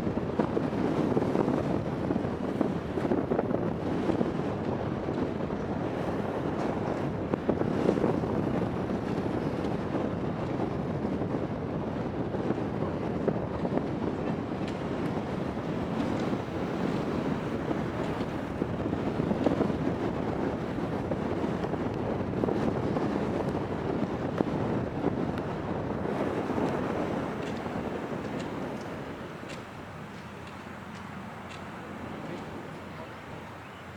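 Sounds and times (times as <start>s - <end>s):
wind buffeting microphone: 0.0s - 33.9s
steady rushing noise: 14.2s - 33.9s.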